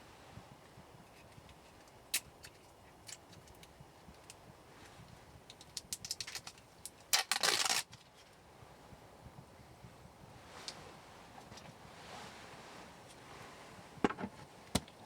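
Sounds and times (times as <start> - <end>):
firewood crackling and popping: 5.4 - 8.1.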